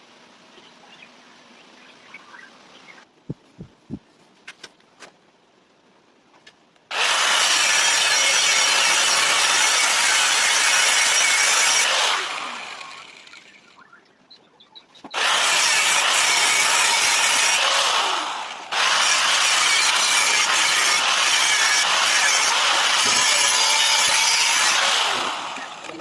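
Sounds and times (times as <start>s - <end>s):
power tool running: 6.9s - 13.7s, 15.2s - 26.0s.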